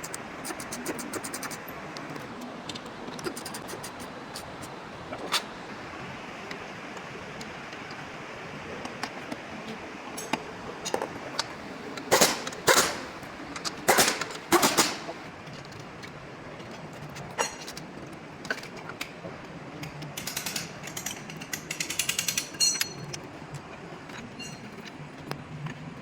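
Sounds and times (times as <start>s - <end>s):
metal clicks: 19.8s - 23.3s.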